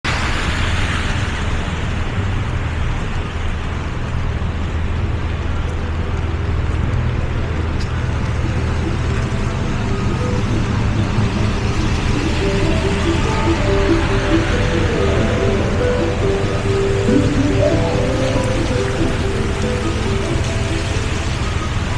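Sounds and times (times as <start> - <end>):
city street traffic rumble: 0.1 - 21.9
rain hiss: 0.1 - 21.9
faint music: 5.2 - 21.9.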